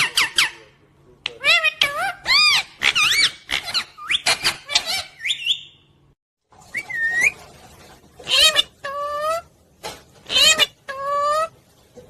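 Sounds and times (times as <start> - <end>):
parrot whistling and squawking: 1.4 - 5.9, 6.7 - 7.5, 8.2 - 9.5, 10.2 - 11.6.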